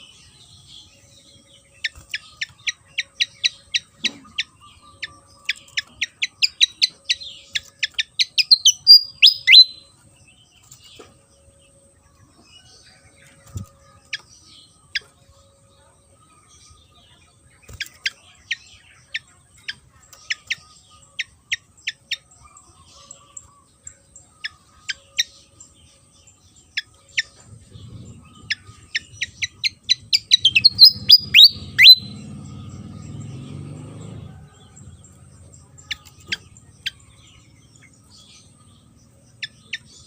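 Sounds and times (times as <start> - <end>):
low rumbling noise: 27.4 - 39.4.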